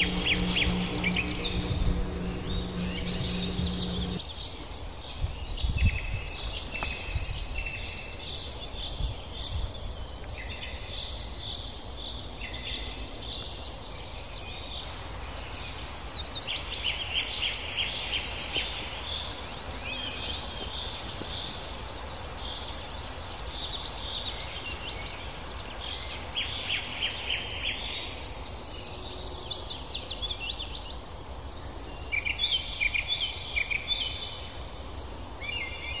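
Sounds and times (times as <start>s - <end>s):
low rumble of background noise: 0.0s - 4.2s.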